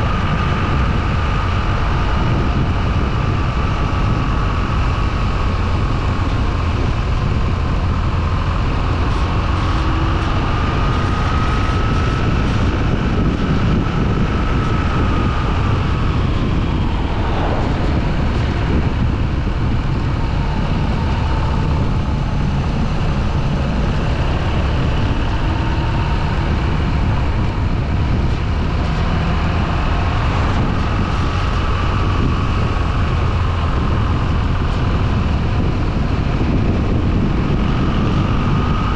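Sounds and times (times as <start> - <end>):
motorcycle engine running: 0.0 - 38.9
wind rush on microphone: 0.0 - 38.9.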